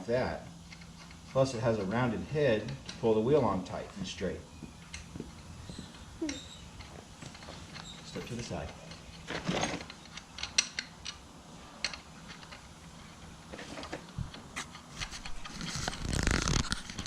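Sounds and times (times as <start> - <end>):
rustling and scraping: 4.9 - 17.0
lug nuts clicking on wheel studs: 6.8 - 12.6.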